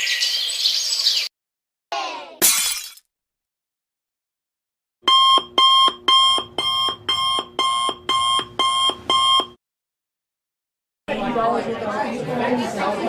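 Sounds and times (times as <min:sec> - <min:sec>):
electronic alarm beeping: 0:05.1 - 0:09.6.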